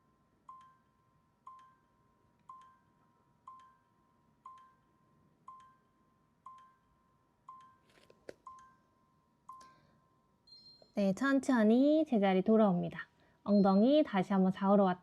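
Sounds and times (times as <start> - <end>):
soft bell-like electronic tone: 0.0 - 7.9, 8.5 - 11.0, 13.5 - 14.2.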